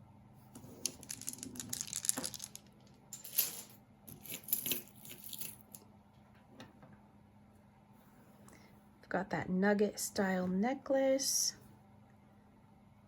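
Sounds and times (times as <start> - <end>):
jewelry clicking and rattling: 0.7 - 5.8.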